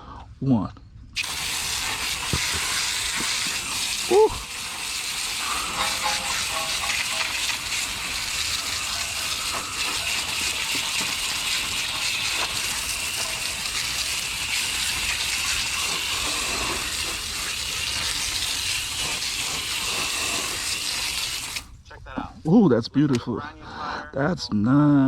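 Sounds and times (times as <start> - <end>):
water spray hissing: 1.2 - 21.8.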